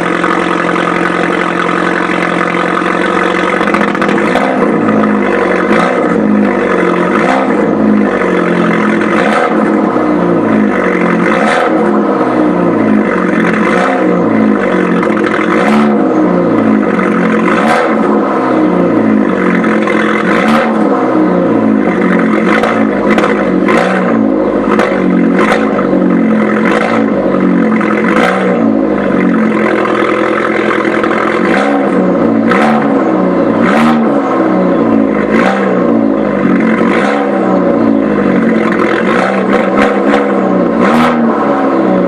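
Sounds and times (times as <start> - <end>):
car engine running: 0.0 - 42.0
short sharp exhaust pops: 21.9 - 28.6.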